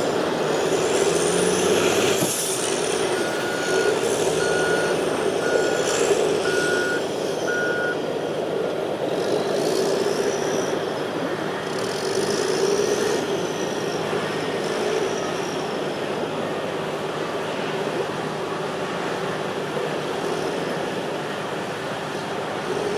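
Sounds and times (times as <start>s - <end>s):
heavy diesel equipment running: 0.0s - 22.9s
reversing alarm beeping: 3.1s - 8.0s.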